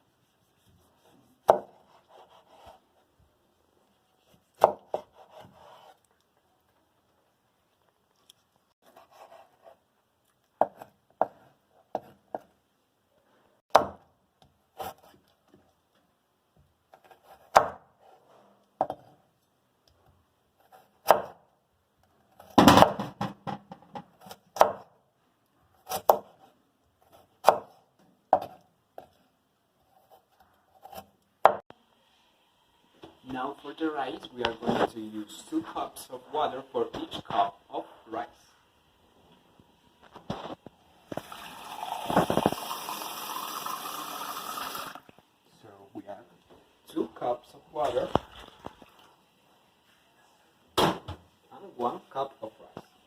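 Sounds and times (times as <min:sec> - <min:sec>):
knife chopping on cutting board: 0:00.9 - 0:02.8, 0:04.6 - 0:05.9, 0:10.6 - 0:12.5, 0:21.0 - 0:21.4, 0:24.2 - 0:24.9, 0:27.1 - 0:27.8.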